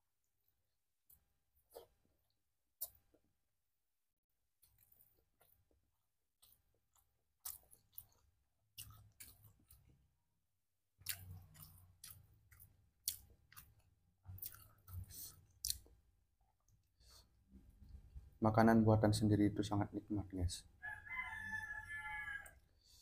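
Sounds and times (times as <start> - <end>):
chewing with crunches: 4.6 - 10.2, 10.9 - 17.0.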